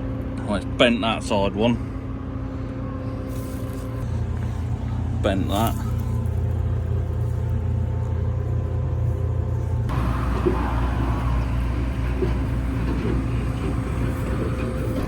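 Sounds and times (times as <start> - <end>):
tractor diesel engine idling: 0.0 - 15.0
rough noisy sound: 9.2 - 15.0.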